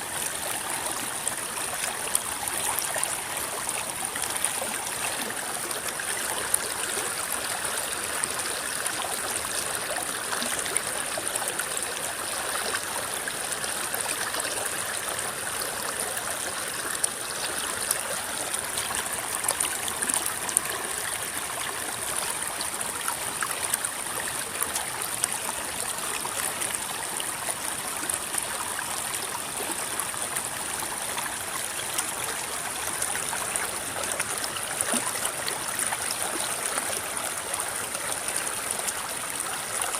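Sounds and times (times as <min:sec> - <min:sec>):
river water flowing: 0:00.0 - 0:39.9
water splashing and gurgling: 0:00.0 - 0:39.9.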